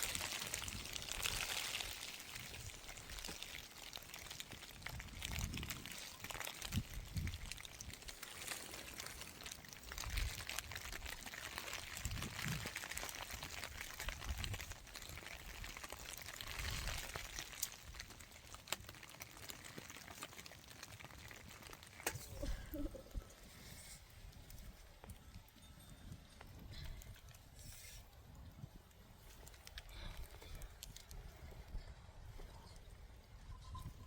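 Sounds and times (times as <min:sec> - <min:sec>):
steady rain falling: 0:00.0 - 0:24.6
wind rumbling on microphone: 0:04.5 - 0:18.2.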